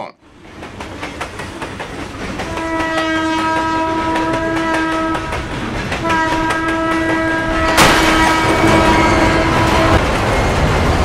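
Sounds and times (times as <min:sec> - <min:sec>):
wheels clattering on rails: 0:00.4 - 0:11.0
train horn blast: 0:02.4 - 0:10.0.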